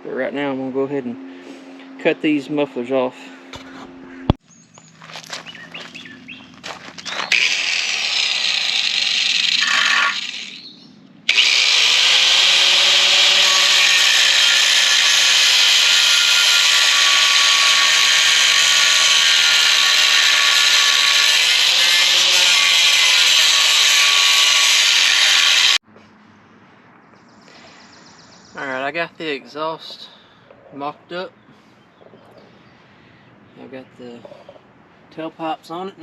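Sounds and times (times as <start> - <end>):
power tool cutting metal pipe: 7.1 - 10.7, 11.3 - 25.8.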